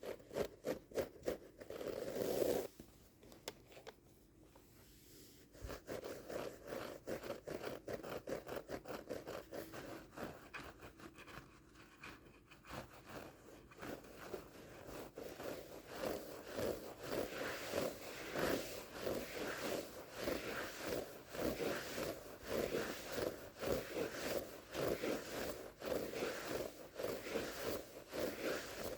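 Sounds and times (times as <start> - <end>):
scrubbing on carpet rug: 13.2 - 28.9.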